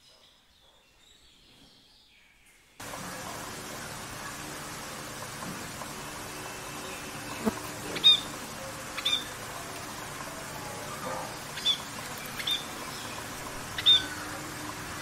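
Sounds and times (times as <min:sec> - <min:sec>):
bird high-pitched calls: 0:08.9 - 0:09.3, 0:11.5 - 0:14.4.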